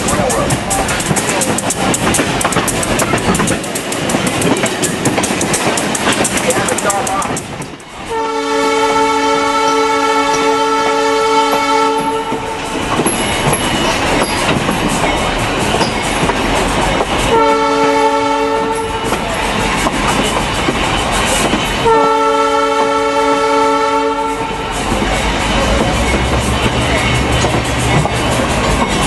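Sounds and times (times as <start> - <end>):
train wheels clattering on rails: 0.0 - 29.0
train horn blasts: 8.0 - 12.8, 17.2 - 19.3, 21.8 - 24.9.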